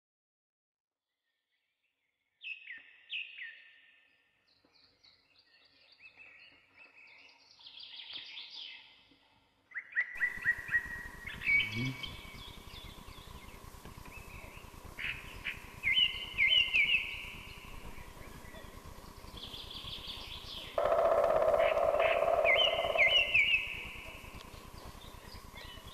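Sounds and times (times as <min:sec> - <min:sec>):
birds chirping and trilling: 0:02.4 - 0:25.9
background hiss with faint hum: 0:10.2 - 0:25.9.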